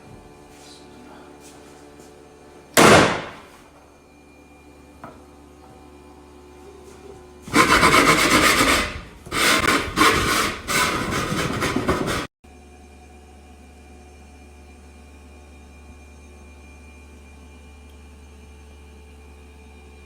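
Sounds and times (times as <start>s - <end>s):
harsh scraping: 7.5s - 12.3s.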